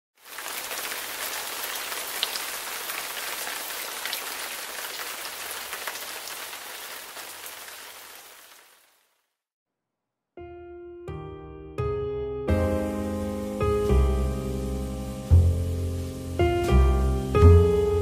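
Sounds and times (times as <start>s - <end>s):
steady rain falling: 0.2s - 9.2s, 13.3s - 18.0s.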